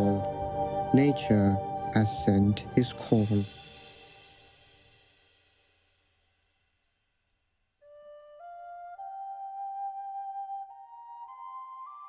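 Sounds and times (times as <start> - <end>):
flute-like wind melody: 7.8 - 12.0.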